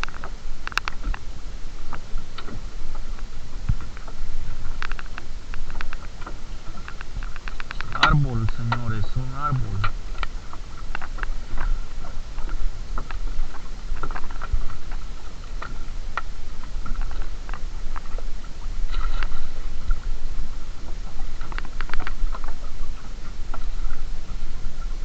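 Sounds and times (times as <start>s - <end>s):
low rumble: 7.2s - 10.5s.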